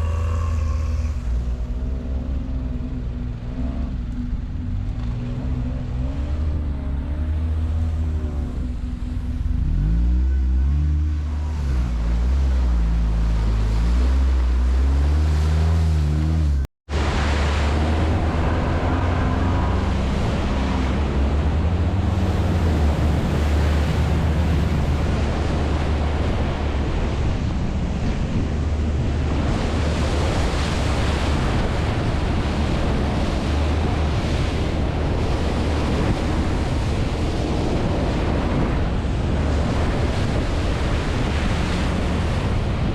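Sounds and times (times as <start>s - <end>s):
wind rush on microphone: 0.0s - 42.9s
atv engine running: 15.7s - 42.9s.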